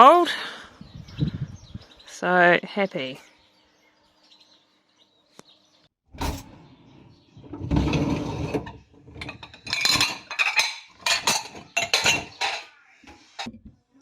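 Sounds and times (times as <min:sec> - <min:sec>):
hard objects knocking and clinking: 0:09.2 - 0:12.7.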